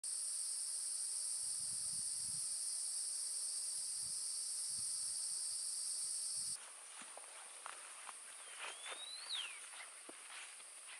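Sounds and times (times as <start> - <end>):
forest insects droning: 0.0 - 10.9
quiet forest ambience: 0.1 - 10.9.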